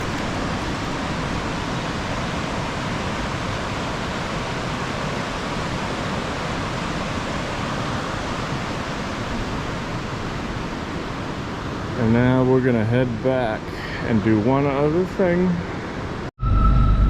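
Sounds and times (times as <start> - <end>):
fast-flowing river water: 0.0 - 11.9.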